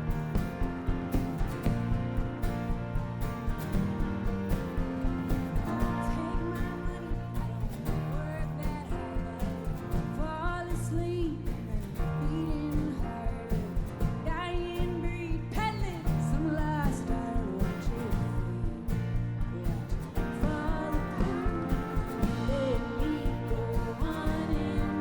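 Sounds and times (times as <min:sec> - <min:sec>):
country rock band playing: 0:00.0 - 0:15.0, 0:15.6 - 0:25.0
person singing: 0:05.5 - 0:25.0.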